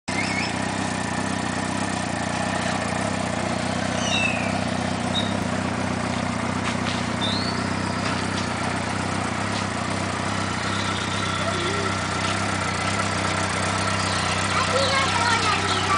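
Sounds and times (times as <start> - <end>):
motorcycle engine idling: 0.1 - 15.9
short high chirps: 7.2 - 8.2.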